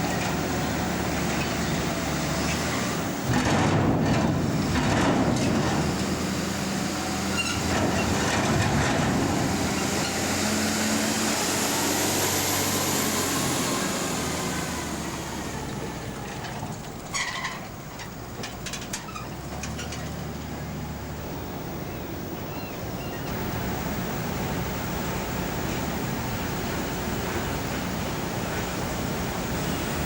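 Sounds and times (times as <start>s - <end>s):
rumble of large machine: 0.0s - 30.0s.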